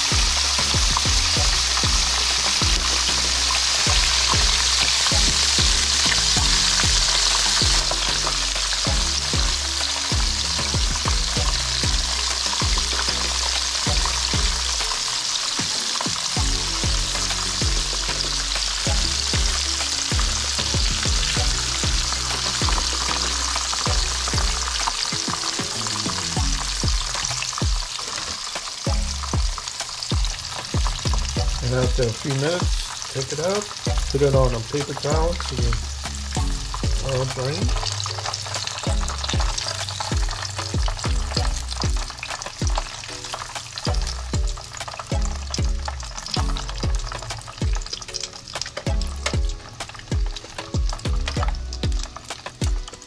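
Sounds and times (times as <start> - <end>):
food frying in oil: 0.0 - 53.0
tongs clicking and scraping in pan: 32.1 - 53.0.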